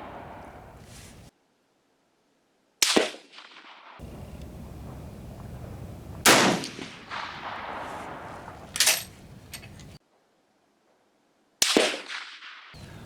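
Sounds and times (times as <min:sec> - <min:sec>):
rifle shots with echo: 0:00.0 - 0:01.2, 0:02.8 - 0:10.0, 0:11.6 - 0:13.0
low background rumble: 0:04.0 - 0:10.0.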